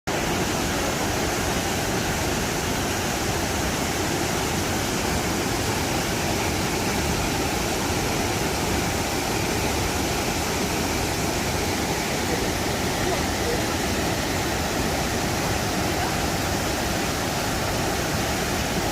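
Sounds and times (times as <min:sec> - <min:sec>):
waterfall rushing: 0:00.1 - 0:18.9.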